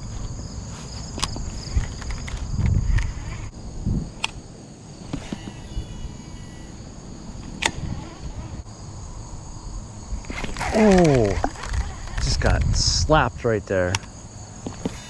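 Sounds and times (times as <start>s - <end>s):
high-pitched insect chorus: 0.0s - 15.0s
sharp clicks: 4.2s - 4.4s, 10.2s - 12.8s
faint falling whir: 5.0s - 8.7s.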